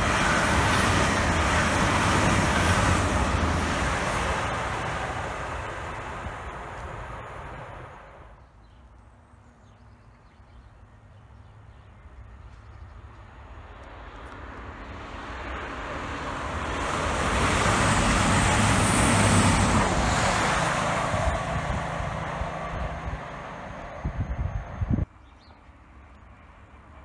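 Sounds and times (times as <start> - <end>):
diesel train passing at speed: 0.0 - 8.5, 10.8 - 25.2, 25.8 - 27.0.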